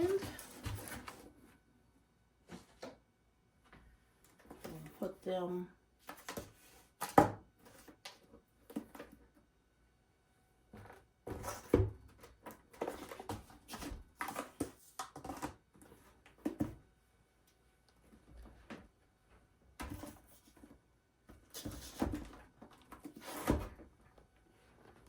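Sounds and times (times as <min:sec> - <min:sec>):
books rustling: 0:00.0 - 0:01.4.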